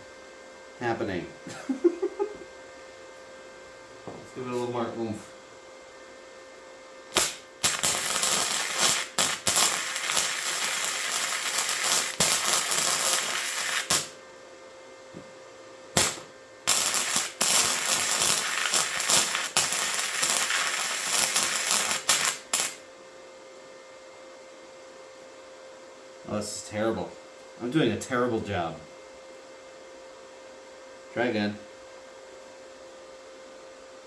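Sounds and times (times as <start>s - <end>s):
faint welder hum: 0.0s - 33.6s
welding arc crackling: 7.1s - 14.2s, 16.0s - 22.8s.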